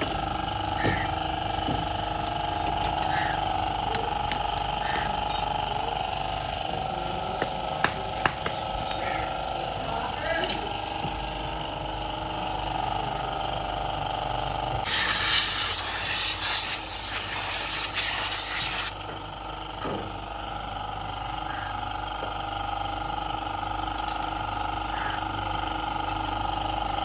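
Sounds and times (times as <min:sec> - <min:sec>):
background hum: 0:00.0 - 0:27.0
pressurised spray hissing: 0:14.9 - 0:19.0.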